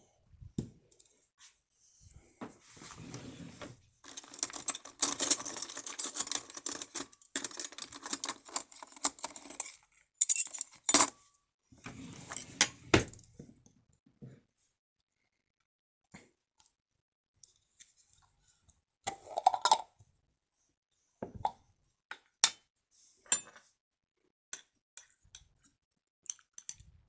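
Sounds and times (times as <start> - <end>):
packaging and tableware rattling: 4.0 - 11.1.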